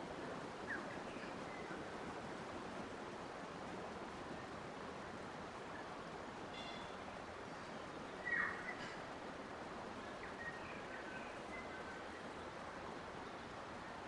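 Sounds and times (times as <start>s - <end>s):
water rushing: 0.0s - 14.0s
faint bird chirps: 6.5s - 7.0s, 7.6s - 9.0s, 10.0s - 12.5s.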